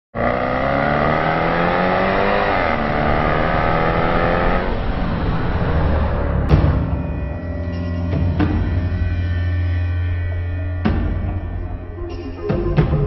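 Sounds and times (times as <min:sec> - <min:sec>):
car engine accelerating hard: 0:00.2 - 0:07.8
road and wind noise: 0:00.2 - 0:08.5.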